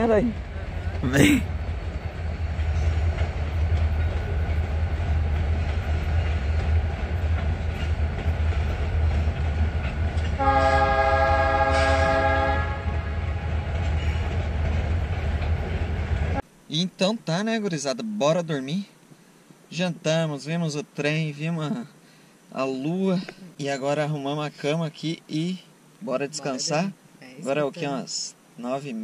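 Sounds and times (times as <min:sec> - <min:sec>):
train rumbling past: 0:00.0 - 0:16.4
locomotive horn blast: 0:10.4 - 0:13.4.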